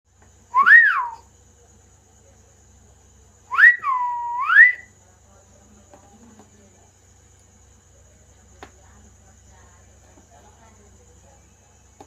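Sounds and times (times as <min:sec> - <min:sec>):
parrot whistling: 0:00.5 - 0:01.2, 0:03.5 - 0:04.9.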